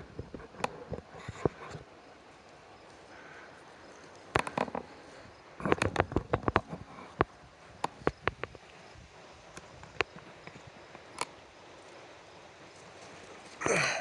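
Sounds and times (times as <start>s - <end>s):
footsteps on rock: 4.0s - 8.6s
loose stones knocking: 5.6s - 8.6s.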